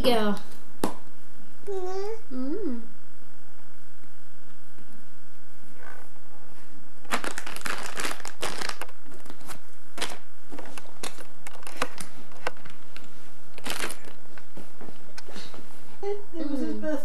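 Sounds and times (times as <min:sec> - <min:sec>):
crinkling and rustling: 0:07.0 - 0:15.8.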